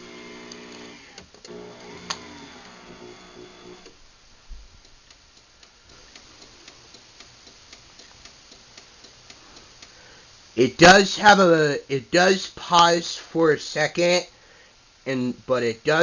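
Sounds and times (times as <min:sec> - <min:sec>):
garage door opener motor humming: 0:00.0 - 0:04.0
light regular clicks: 0:04.8 - 0:10.0.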